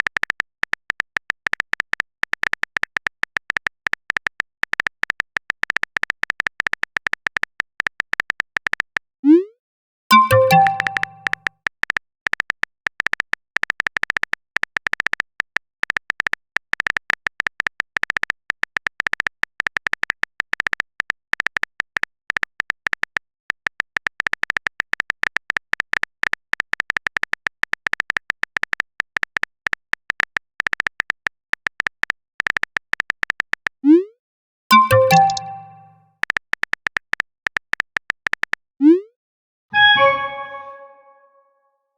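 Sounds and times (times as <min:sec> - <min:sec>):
typing clicks: 0:10.1 - 0:15.2, 0:34.7 - 0:38.5.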